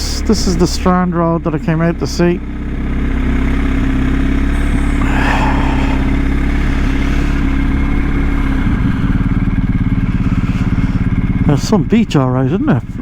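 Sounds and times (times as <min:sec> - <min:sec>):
motorcycle engine running: 0:00.0 - 0:13.0
passing vehicle hiss: 0:04.6 - 0:09.2.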